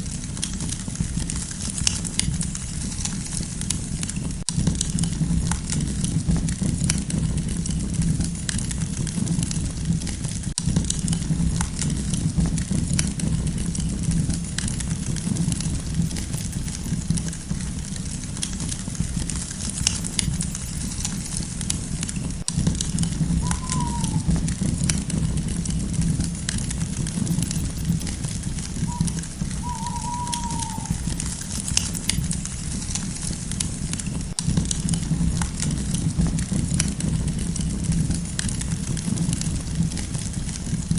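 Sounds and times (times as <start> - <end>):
bird call falling in pitch: 23.3 - 24.6, 28.8 - 31.4.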